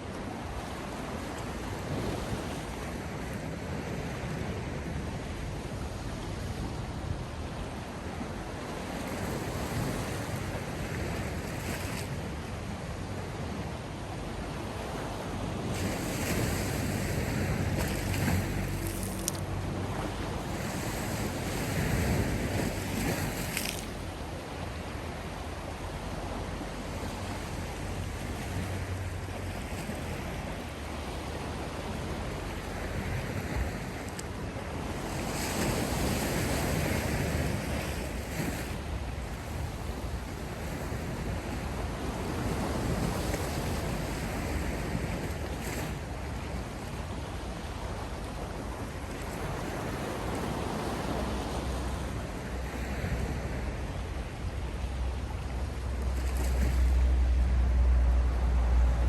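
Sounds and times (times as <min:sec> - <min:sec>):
waves breaking: 0:00.0 - 0:59.0
low rumble: 0:56.8 - 0:59.0.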